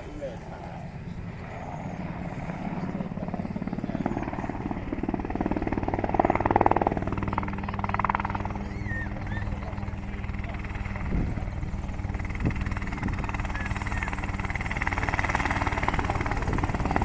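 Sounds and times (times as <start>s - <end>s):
helicopter rotor beating: 0.0s - 17.0s.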